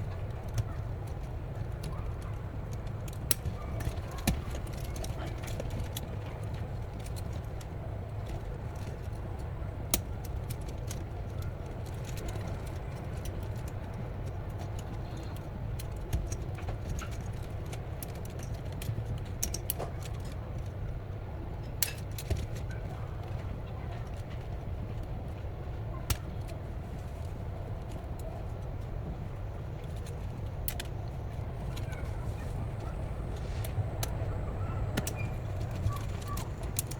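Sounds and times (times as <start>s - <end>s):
wind rumbling on microphone: 26.6s - 36.9s.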